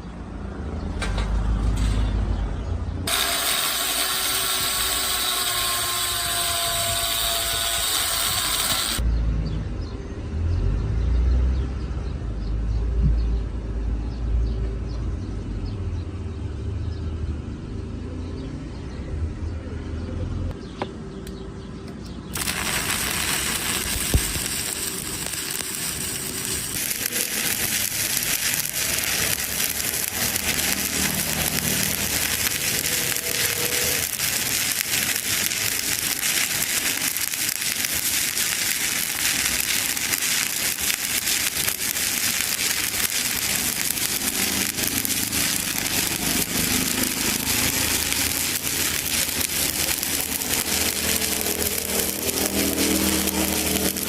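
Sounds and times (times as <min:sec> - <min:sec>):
welding arc crackling: 0:03.0 - 0:09.0, 0:22.3 - 0:54.0.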